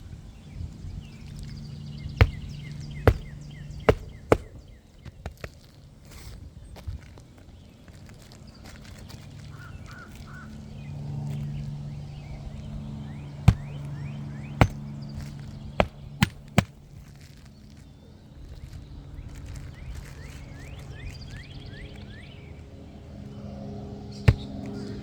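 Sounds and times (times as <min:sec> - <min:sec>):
hammer driving nails into shingle: 0:02.1 - 0:05.4, 0:13.5 - 0:13.9, 0:14.6 - 0:16.8, 0:24.3 - 0:24.7.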